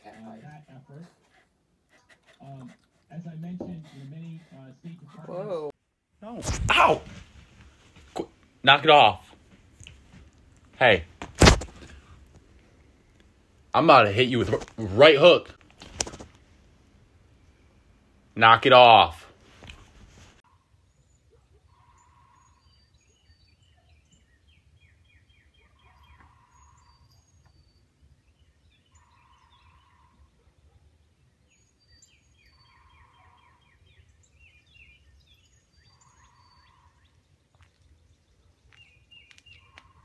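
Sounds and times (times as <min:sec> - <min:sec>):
high bird chirps: 0:20.5 - 0:30.3, 0:31.5 - 0:40.0.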